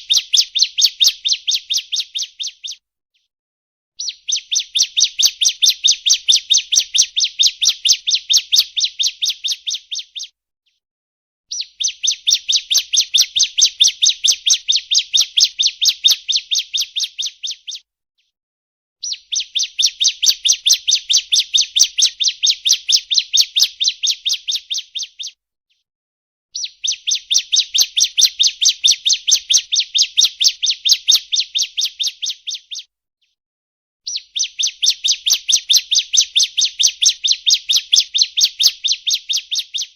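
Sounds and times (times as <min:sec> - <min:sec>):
bird song high chirping: 0:00.0 - 0:02.8, 0:04.0 - 0:10.4, 0:11.5 - 0:17.9, 0:19.0 - 0:25.4, 0:26.6 - 0:32.9, 0:34.1 - 0:39.9.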